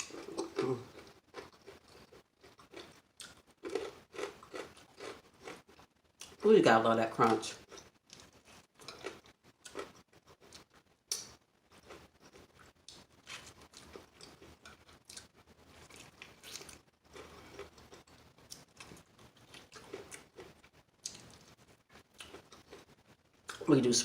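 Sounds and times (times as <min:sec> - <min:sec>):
chewing crispy chicken: 0:00.0 - 0:06.5, 0:07.2 - 0:23.7.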